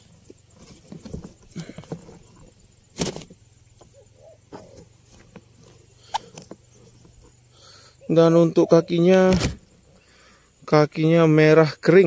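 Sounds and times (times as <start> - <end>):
handling knocks and rustles: 0.0 - 7.4.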